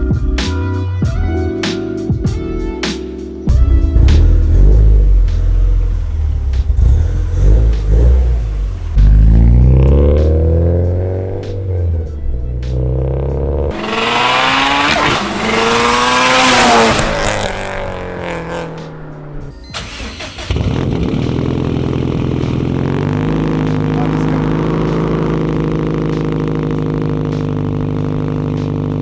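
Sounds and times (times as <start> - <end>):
car engine cold-starting and idling: 3.5 - 10.5, 19.5 - 29.0.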